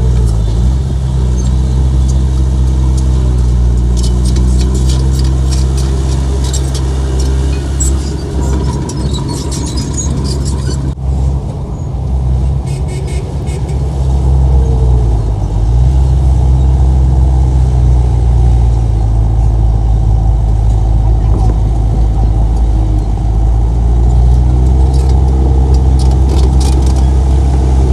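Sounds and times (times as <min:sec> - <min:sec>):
rapid metallic clicking and squeaking: 0:00.0 - 0:11.0, 0:11.8 - 0:13.9, 0:20.5 - 0:27.9
heavy diesel machinery engine: 0:00.0 - 0:27.9.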